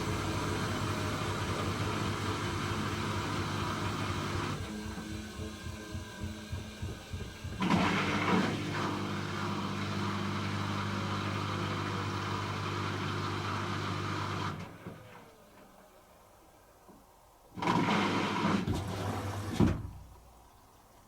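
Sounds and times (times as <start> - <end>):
drum motor humming and whining: 0.0 - 13.4
washing machine spinning: 0.0 - 14.8.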